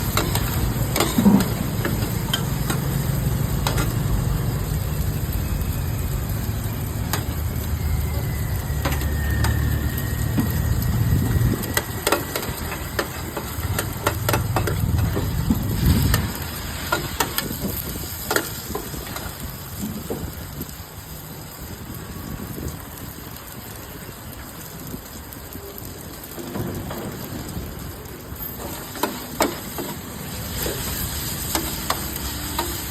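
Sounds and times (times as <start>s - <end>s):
metal spatula scraping a wok: 0.0s - 4.1s, 28.6s - 32.9s
noodles sizzling in a wok: 0.0s - 32.9s.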